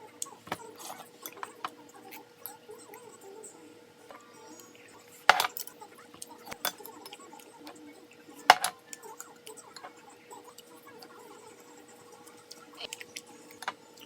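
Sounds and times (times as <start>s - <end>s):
faint steady hum: 0.0s - 14.0s
utensils and dishes clicking: 0.5s - 2.6s, 5.2s - 7.8s, 8.4s - 11.1s, 12.5s - 14.0s.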